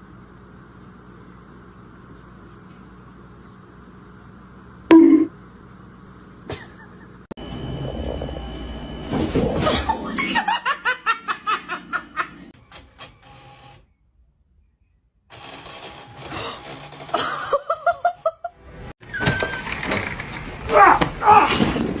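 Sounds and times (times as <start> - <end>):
person laughing: 17.2 - 18.5.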